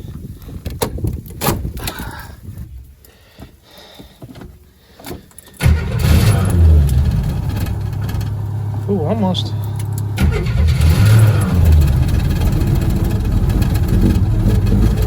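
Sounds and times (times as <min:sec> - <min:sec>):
clicks and rustles in a car: 0:00.0 - 0:15.0
car engine cranking: 0:05.0 - 0:15.0.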